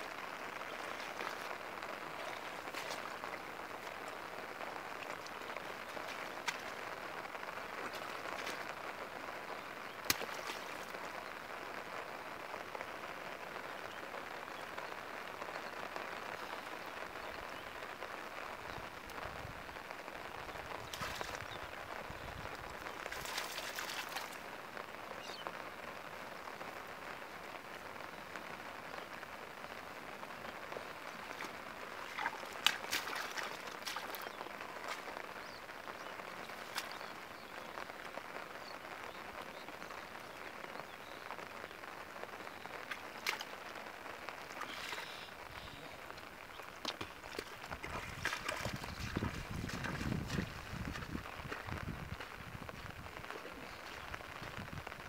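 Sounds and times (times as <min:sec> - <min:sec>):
rain pattering on grass: 0:00.0 - 0:55.0
splashing in shallow water: 0:00.1 - 0:09.0, 0:10.0 - 0:11.2, 0:20.6 - 0:21.8, 0:22.5 - 0:24.5, 0:30.8 - 0:35.4, 0:42.8 - 0:43.8, 0:44.4 - 0:46.0, 0:46.6 - 0:54.2.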